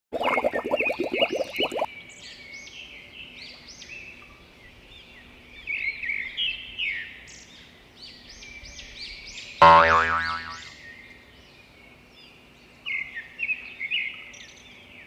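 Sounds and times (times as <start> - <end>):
springy boing sound effect: 9.6 - 10.7.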